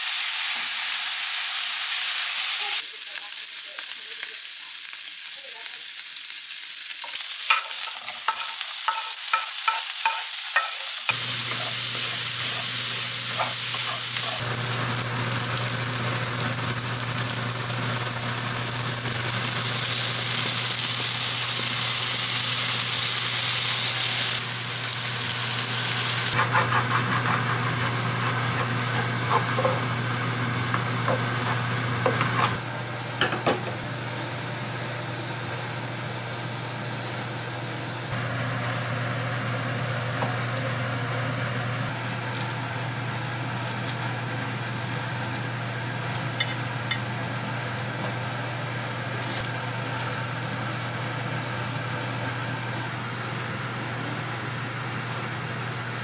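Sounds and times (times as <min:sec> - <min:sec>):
meat sizzling in a frying pan: 0:00.0 - 0:26.4
wooden spatula scraping: 0:26.4 - 0:29.8.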